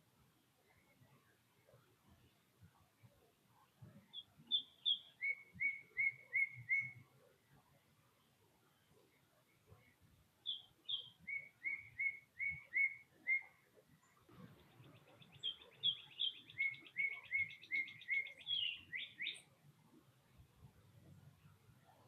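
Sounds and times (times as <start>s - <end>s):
songbird whistling: 4.1s - 7.0s, 10.4s - 13.6s, 15.2s - 19.5s.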